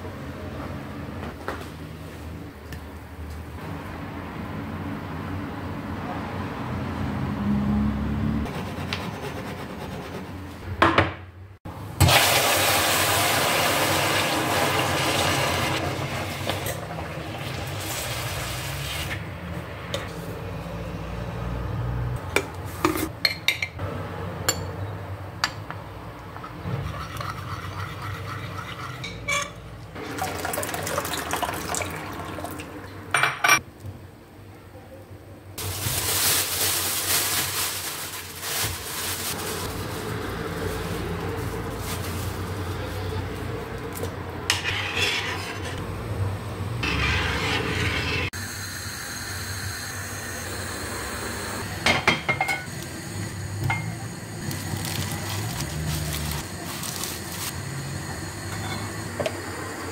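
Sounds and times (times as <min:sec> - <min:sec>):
water running and pouring: 0:30.0 - 0:32.9.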